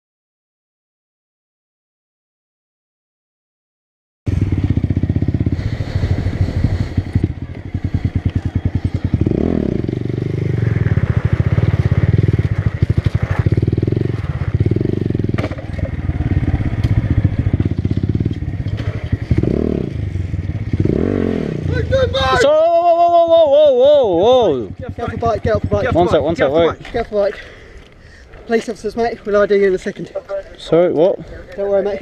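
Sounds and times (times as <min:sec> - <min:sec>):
motorcycle engine revving: 0:04.3 - 0:22.5, 0:23.9 - 0:26.8.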